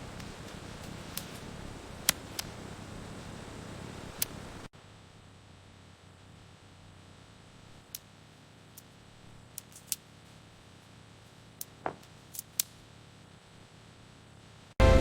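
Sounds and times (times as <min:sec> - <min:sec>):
sharp light clicks: 0:00.0 - 0:02.8, 0:04.0 - 0:04.5, 0:07.7 - 0:10.2, 0:11.6 - 0:12.8.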